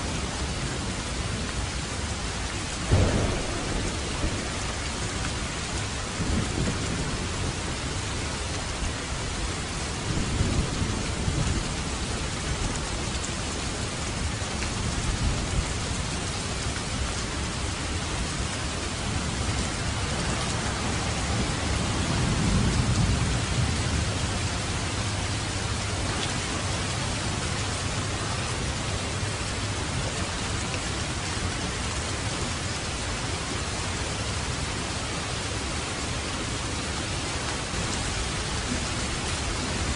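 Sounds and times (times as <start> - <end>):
steady rain falling: 0.0 - 39.9
thunder rumbling: 2.7 - 13.1, 14.1 - 30.2.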